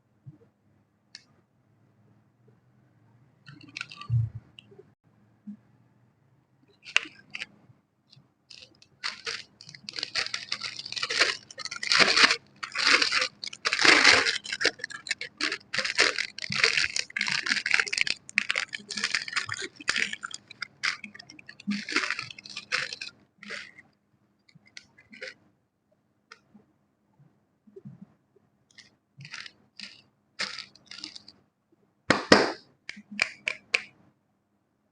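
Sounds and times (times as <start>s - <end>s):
dense crunching and crackling: 8.5s - 23.9s, 29.2s - 31.3s.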